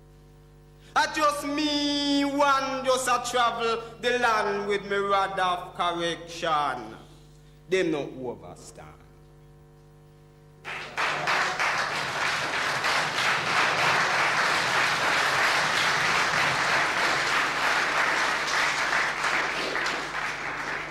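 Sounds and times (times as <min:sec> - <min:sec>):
faint low hum: 0:00.0 - 0:20.9
audience applause: 0:10.7 - 0:20.9.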